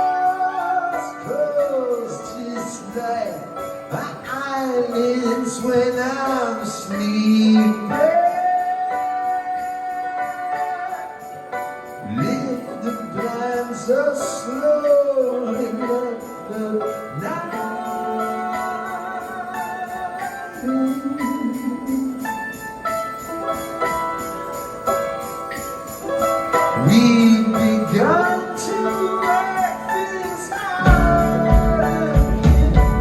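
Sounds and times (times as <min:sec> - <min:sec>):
jingle bells shaking: 0:00.0 - 0:33.0
live rock band playing: 0:23.0 - 0:33.0.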